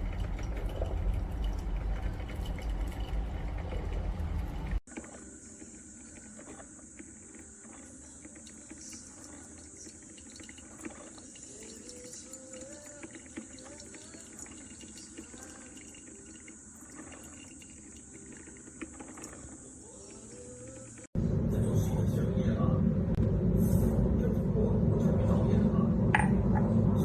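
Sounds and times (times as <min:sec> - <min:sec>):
liquid trickling: 0:00.0 - 0:21.1
coffee machine hiss: 0:05.0 - 0:21.1.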